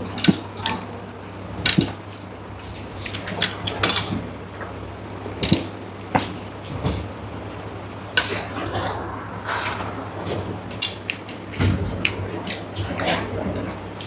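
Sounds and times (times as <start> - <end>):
metallic clinks and jingles: 0.0 - 4.3, 4.9 - 9.0
steady low hum: 0.0 - 14.0.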